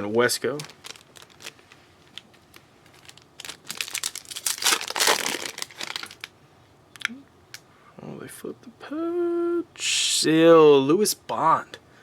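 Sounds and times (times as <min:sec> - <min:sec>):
wrapper crinkling: 0:00.0 - 0:06.3.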